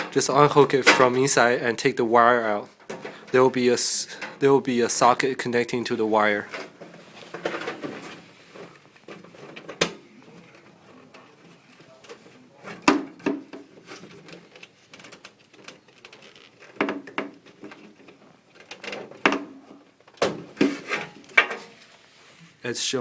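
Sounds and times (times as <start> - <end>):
hands rubbing and scraping wire: 6.2 - 12.9, 13.6 - 20.1.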